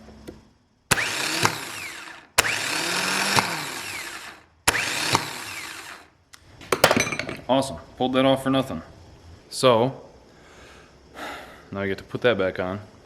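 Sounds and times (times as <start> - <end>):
starter motor whirring whine: 0.9 - 6.1.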